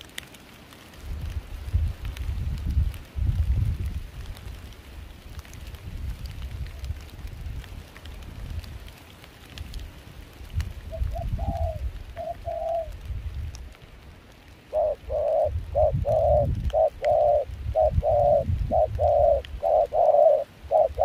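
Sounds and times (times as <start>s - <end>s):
wind rumble on microphone: 0.9s - 21.0s
dove cooing: 10.9s - 13.0s, 14.7s - 21.0s.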